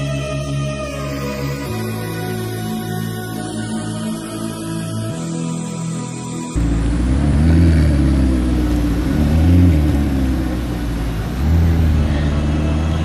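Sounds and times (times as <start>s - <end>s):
car engines revving: 6.6s - 13.0s.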